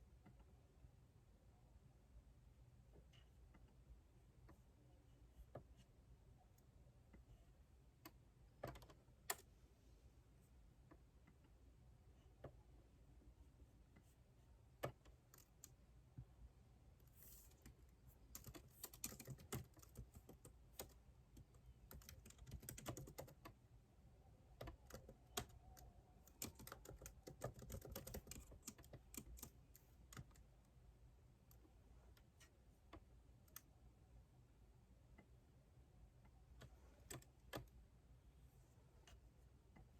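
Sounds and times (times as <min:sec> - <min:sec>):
typing on computer keyboard: 0:08.6 - 0:09.4, 0:17.5 - 0:23.6, 0:24.6 - 0:30.4.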